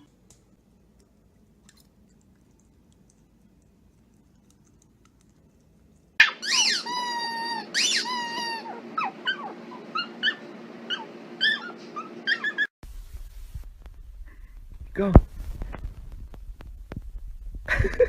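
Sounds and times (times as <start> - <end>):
dog whining: 6.2 - 12.7.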